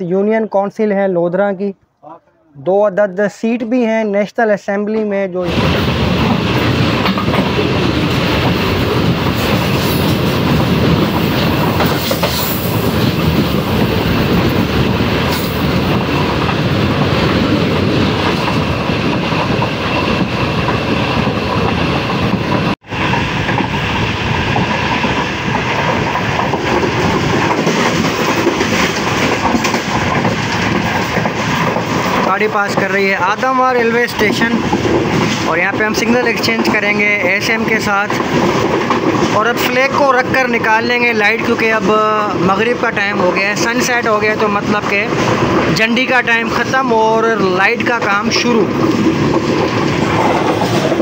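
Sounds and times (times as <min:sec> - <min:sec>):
train wheels rumbling on rails: 0:05.4 - 0:51.0.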